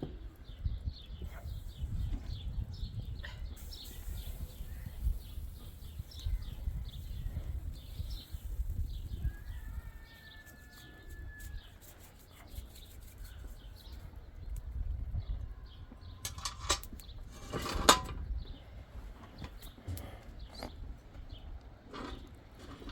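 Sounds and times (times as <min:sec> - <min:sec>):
small bird chirping: 0:00.5 - 0:14.1.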